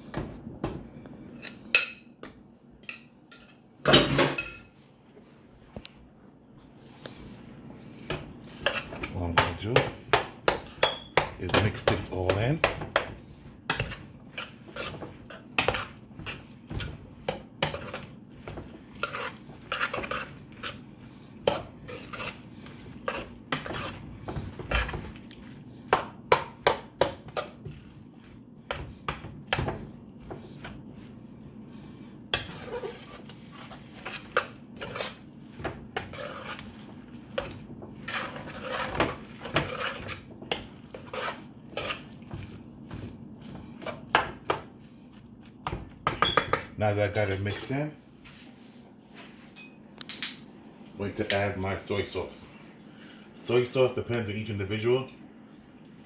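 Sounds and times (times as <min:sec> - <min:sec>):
utensil clacking and scraping pan: 0:08.0 - 0:31.2, 0:32.3 - 0:44.8.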